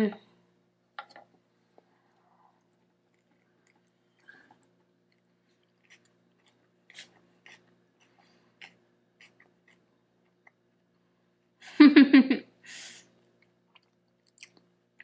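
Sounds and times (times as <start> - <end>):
low electrical hum: 0.0 - 15.0
chewing with wet smacks: 2.6 - 10.7, 13.4 - 15.0.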